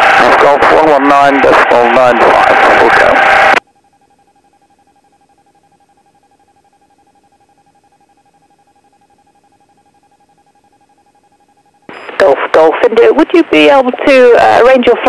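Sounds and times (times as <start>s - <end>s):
radio hiss: 0.0s - 3.6s, 11.9s - 15.0s
faint steady electronic tone: 0.3s - 15.0s.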